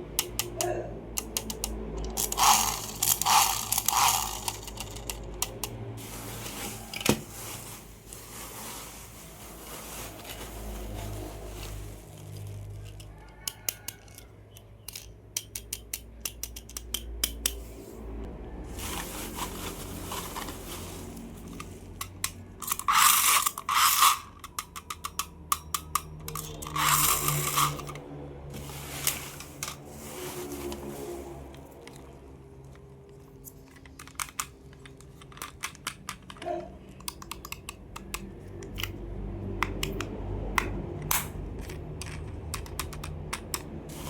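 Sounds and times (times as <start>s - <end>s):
plastic toy cars clicking: 0.0s - 5.9s, 12.2s - 17.6s, 21.4s - 29.8s, 32.6s - 44.0s
scraping rustles: 6.0s - 13.0s, 18.6s - 22.0s, 28.5s - 31.8s.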